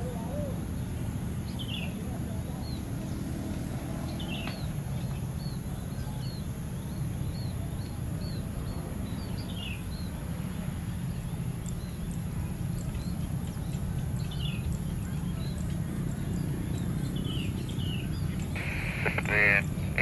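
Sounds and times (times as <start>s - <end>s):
low outdoor rumble: 0.0s - 20.0s
bird chirping: 11.1s - 20.0s.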